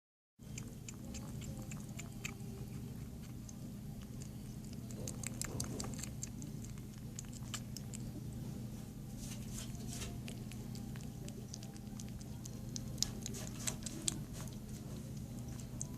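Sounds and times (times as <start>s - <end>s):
kitten chewing: 0.4s - 15.9s
steady low hum: 0.4s - 15.9s.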